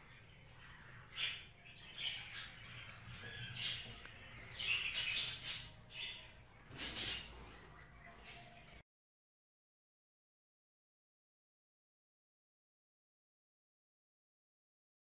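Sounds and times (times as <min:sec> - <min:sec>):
budgerigar chirping: 0:00.7 - 0:08.8.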